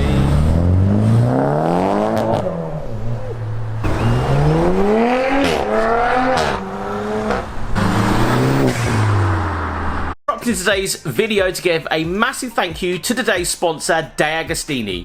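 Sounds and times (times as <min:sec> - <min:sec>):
car engine revving through gears: 0:00.0 - 0:10.2.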